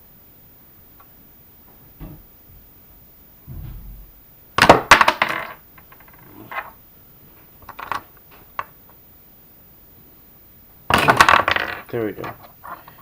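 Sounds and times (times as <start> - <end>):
plastic bricks clattering: 4.6 - 6.7, 10.9 - 13.0.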